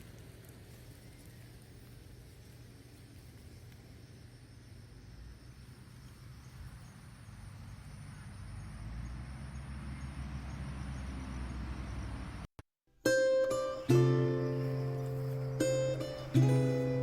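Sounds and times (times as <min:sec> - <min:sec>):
faint high insect tones: 0:00.0 - 0:12.2, 0:13.4 - 0:17.0.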